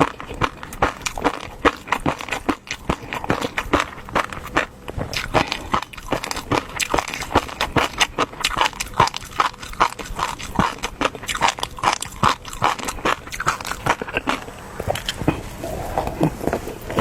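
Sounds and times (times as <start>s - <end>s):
wet mouth chewing smacks: 0.0s - 17.0s.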